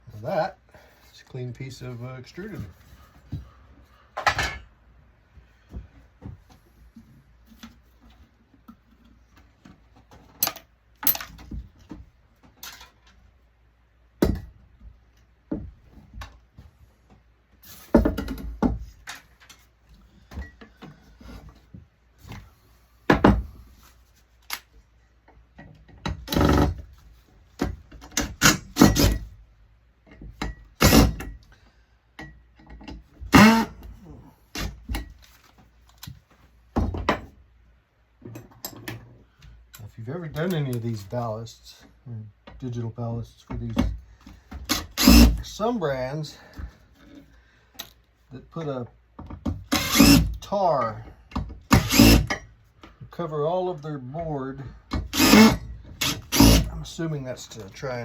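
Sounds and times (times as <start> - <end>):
tools and metal parts clattering: 4.2 - 4.7, 10.0 - 11.6, 12.5 - 13.2, 38.2 - 39.1.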